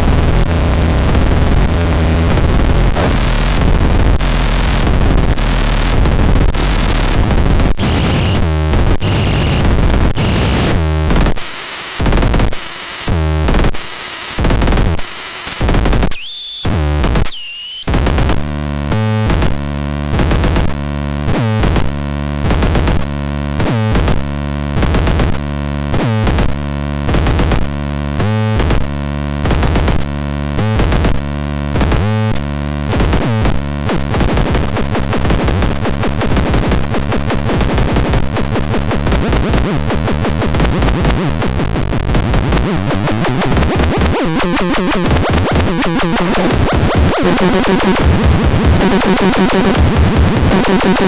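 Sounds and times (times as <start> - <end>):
harsh pulsing synthesizer: 0.0 - 15.6, 39.4 - 51.0.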